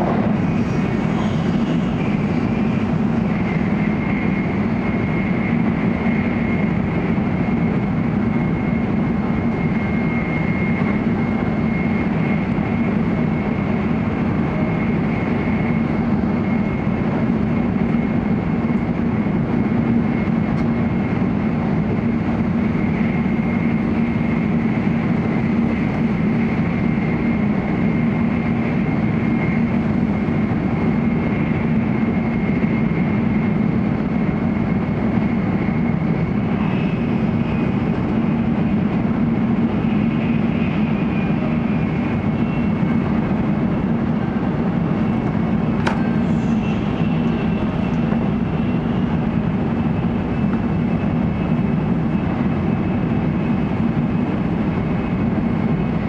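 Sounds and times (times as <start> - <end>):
train rumble and rush: 0.0 - 56.0
thin high whine: 45.0 - 49.3.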